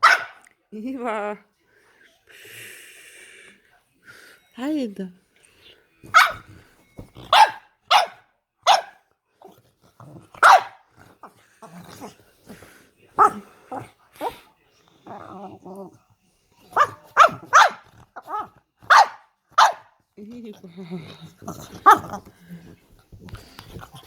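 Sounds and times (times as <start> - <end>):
dog grumbling: 15.0 - 16.0.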